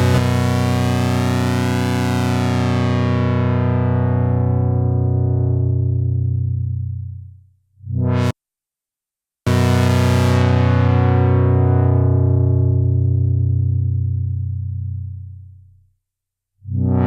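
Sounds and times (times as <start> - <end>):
buzzy synthesizer note: 0.0 - 6.4, 16.7 - 17.0.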